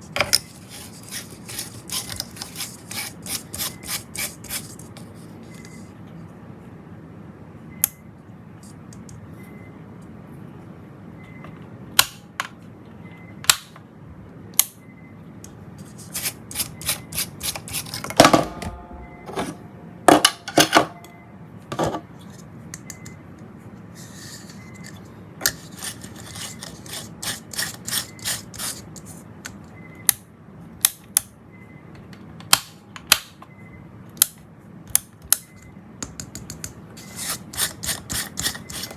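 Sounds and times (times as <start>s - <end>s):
steady low hum: 0.0s - 30.8s.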